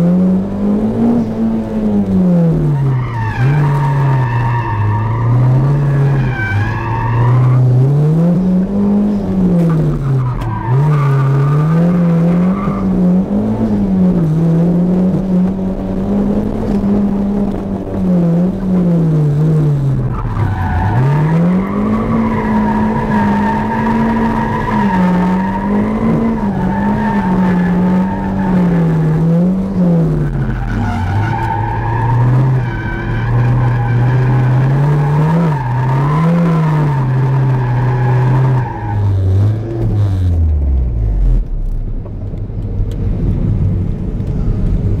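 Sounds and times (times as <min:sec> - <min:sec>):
car engine revving: 0:00.0 - 0:42.3
tyres squealing: 0:30.2 - 0:39.2.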